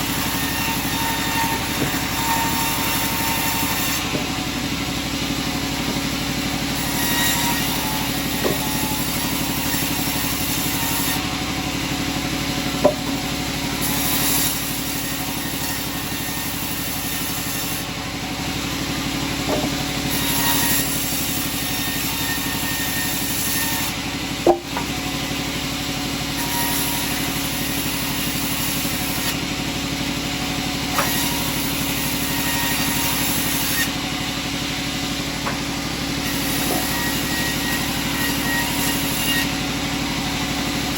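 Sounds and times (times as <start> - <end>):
sawmill engine drone: 0.0 - 40.9
sharp knocks: 4.0 - 4.5, 8.3 - 8.9, 12.8 - 13.3, 19.4 - 20.0, 24.4 - 25.0, 35.4 - 35.8.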